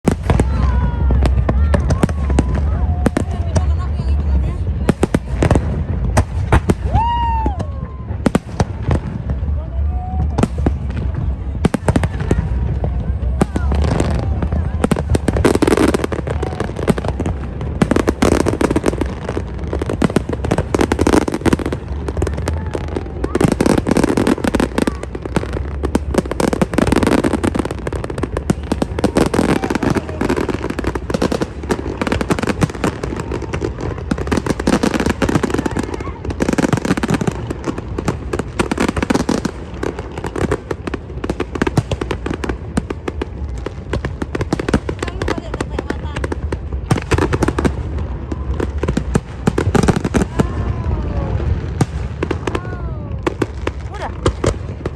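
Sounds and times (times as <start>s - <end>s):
low rumble: 0.0s - 38.6s
fireworks crackling and popping: 0.0s - 54.9s.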